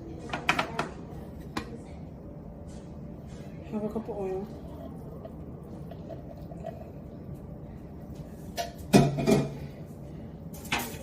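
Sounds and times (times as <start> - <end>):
kitchen containers and utensils clattering: 8.4 - 9.7, 10.5 - 11.0.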